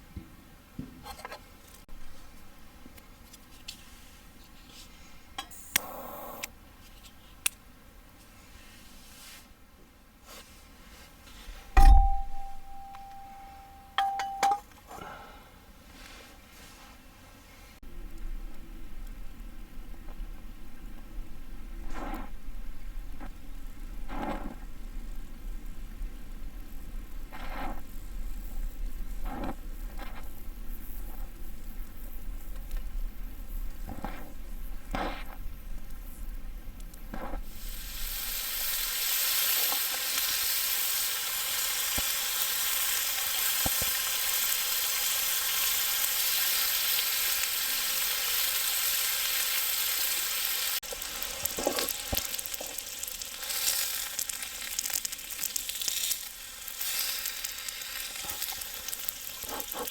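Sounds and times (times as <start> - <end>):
loud steady sizzling: 11.7 - 14.4, 17.8 - 59.9.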